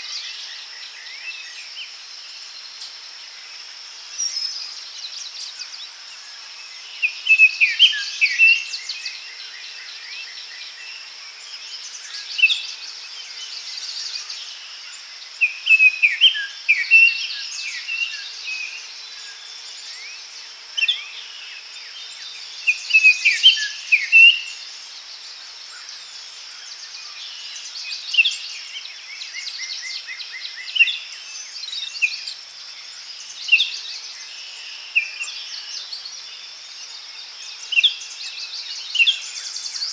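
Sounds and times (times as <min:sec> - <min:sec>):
high insect-like hiss: 0:00.0 - 0:39.9
songbirds singing: 0:00.0 - 0:39.9.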